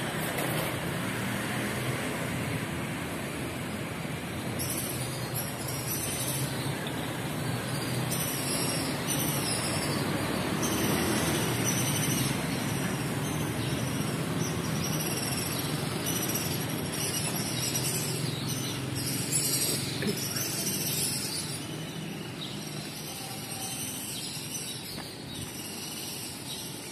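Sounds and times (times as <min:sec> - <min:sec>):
train wheels rumbling on rails: 0:00.0 - 0:14.3.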